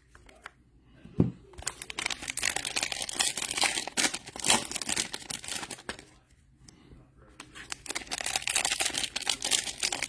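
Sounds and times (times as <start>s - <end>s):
wrappers crinkling and tearing: 1.6s - 6.2s, 7.5s - 10.0s.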